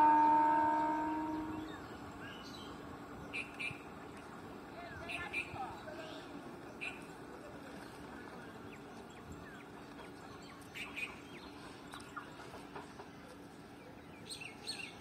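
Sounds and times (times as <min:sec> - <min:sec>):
small birds chirping: 0:13.7 - 0:15.0.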